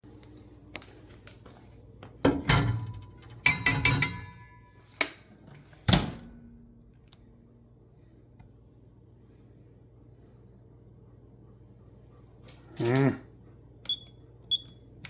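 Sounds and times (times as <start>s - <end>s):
metal bowl knocking and clinking: 2.3s - 4.6s.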